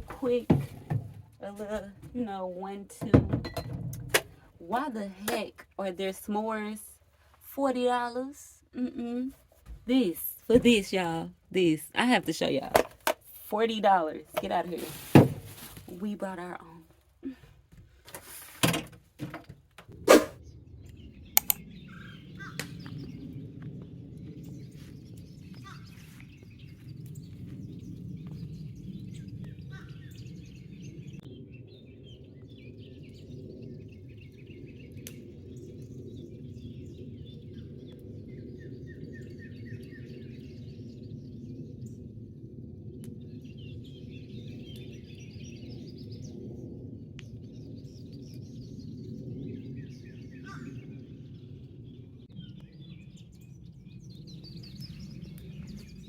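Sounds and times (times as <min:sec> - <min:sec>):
low background rumble: 0:19.0 - 0:56.0
birds chirping and trilling: 0:19.9 - 0:56.0.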